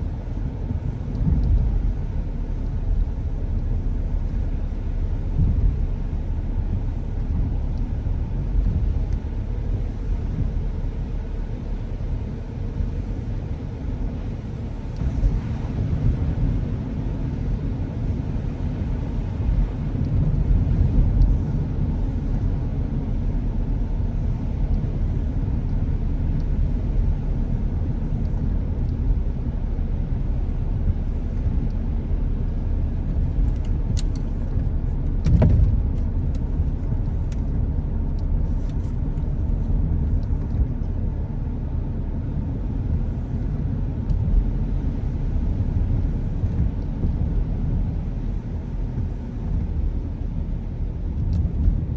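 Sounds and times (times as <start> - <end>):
car road and engine rumble: 0.0 - 51.9
thump: 35.2 - 35.8.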